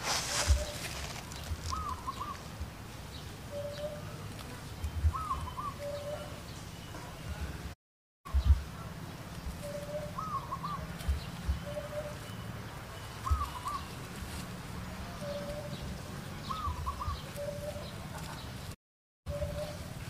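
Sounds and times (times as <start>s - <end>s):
bird calling whistle: 0.2s - 1.0s.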